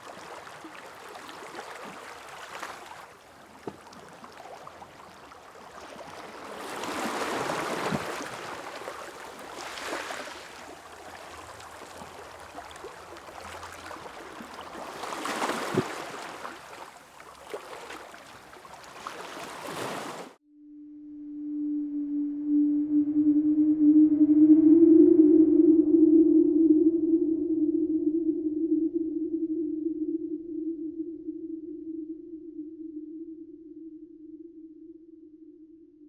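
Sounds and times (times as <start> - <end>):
small clicks and splashes: 0.0 - 6.6, 7.8 - 19.9
small waves washing onto beach: 0.0 - 20.4
steady low ringing tone: 20.5 - 36.0.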